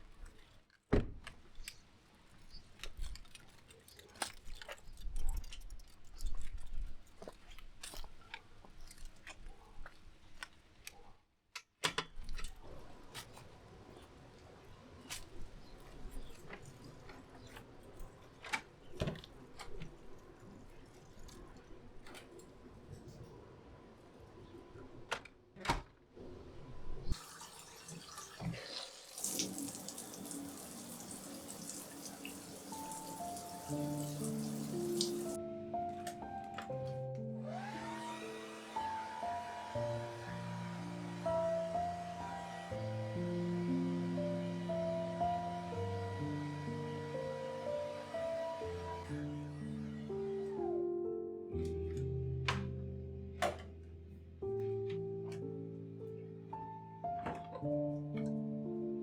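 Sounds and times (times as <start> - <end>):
small objects clicking and rustling: 1.4 - 10.9
water running: 27.1 - 35.4, 37.4 - 50.5
soft music notes: 29.5 - 59.0.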